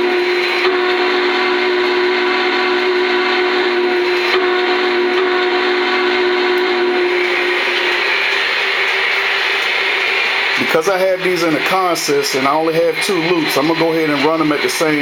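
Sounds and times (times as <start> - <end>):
model train running on track: 0.0 - 15.0
multi-tone steam whistle: 0.0 - 15.0.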